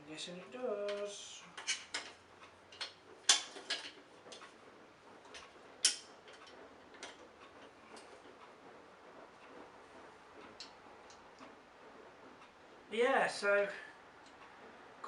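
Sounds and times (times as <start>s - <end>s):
clicks and knocks handling vacuum parts: 0.9s - 4.5s.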